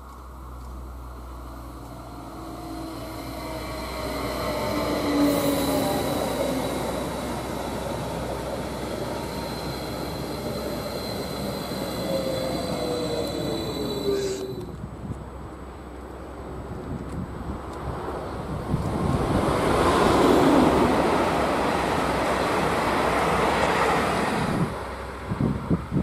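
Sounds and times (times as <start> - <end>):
wheels on track: 0.0 - 26.0
train rushing past: 1.0 - 15.0, 17.8 - 25.9
electric motor whine: 2.4 - 14.8.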